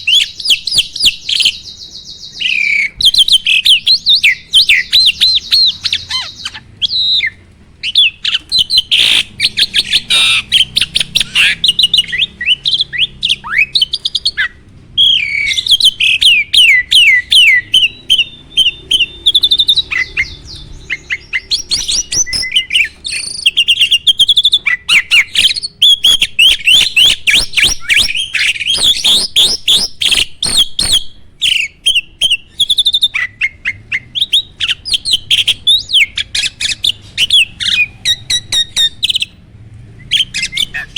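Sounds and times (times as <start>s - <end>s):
bird chattering song: 0.0s - 40.9s.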